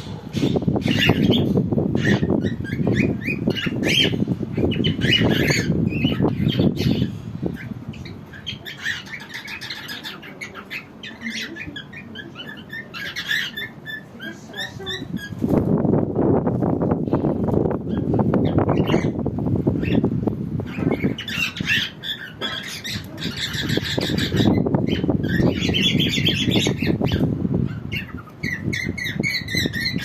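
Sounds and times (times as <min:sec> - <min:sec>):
low rumbling noise: 0:00.0 - 0:14.2, 0:14.8 - 0:22.2
small birds chirping: 0:00.0 - 0:30.0.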